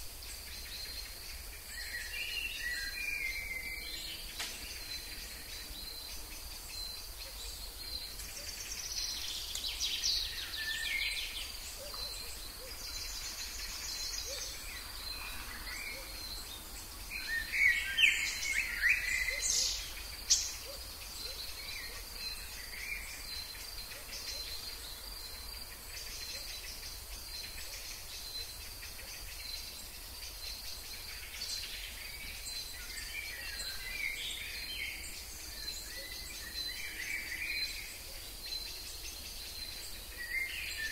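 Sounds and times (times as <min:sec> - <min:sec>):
high insect drone: 0:00.0 - 0:40.9
wild birds calling: 0:00.3 - 0:40.9.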